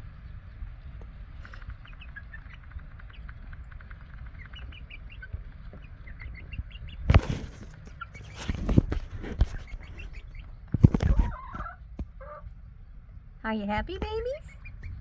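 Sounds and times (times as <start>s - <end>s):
chicks peeping: 0.0s - 15.0s
low rumble: 0.0s - 15.0s
rustling and flapping scuffle: 7.0s - 12.2s.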